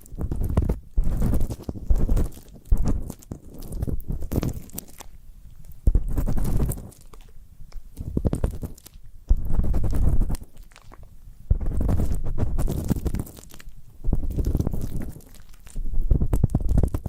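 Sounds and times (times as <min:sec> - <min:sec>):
ear pick scraping microphone: 0:00.0 - 0:03.1, 0:05.9 - 0:07.0, 0:08.0 - 0:10.4, 0:11.5 - 0:13.3.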